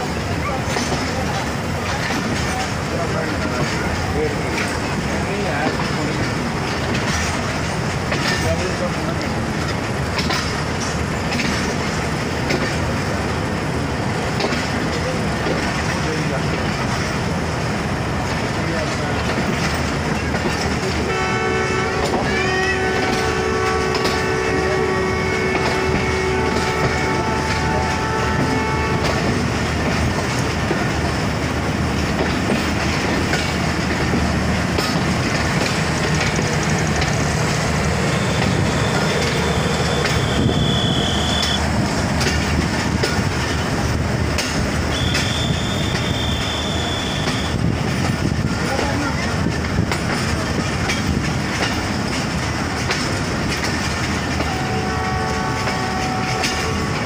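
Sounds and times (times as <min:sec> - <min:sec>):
train rumble and wheel clatter: 0:00.0 - 0:57.0
multi-note train horn: 0:21.0 - 0:29.4, 0:38.0 - 0:41.6, 0:44.9 - 0:47.6, 0:54.4 - 0:57.0.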